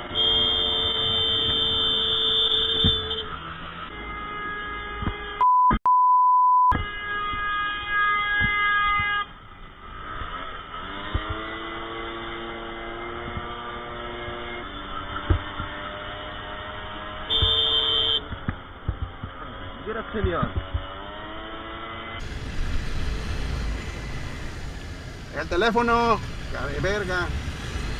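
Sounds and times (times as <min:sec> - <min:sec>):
car horn blasts: 0:00.0 - 0:03.3, 0:03.9 - 0:05.6, 0:06.7 - 0:09.3, 0:17.2 - 0:18.3
censor bleep tone: 0:05.4 - 0:06.8
engine revving: 0:09.8 - 0:17.7, 0:18.4 - 0:27.9.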